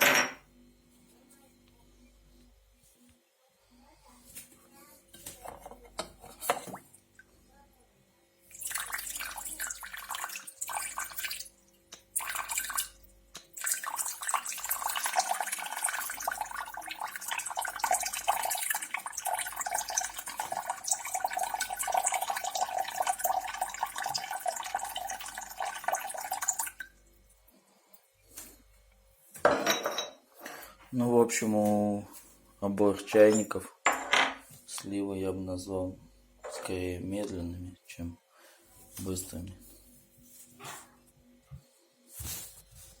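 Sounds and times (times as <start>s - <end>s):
water pouring from kettle: 8.5s - 27.0s.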